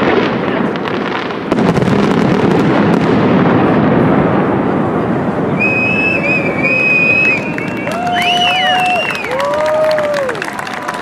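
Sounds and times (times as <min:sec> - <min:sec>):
fireworks crackling and rumbling: 0:00.0 - 0:11.0
shrill firework whistle: 0:05.5 - 0:10.4.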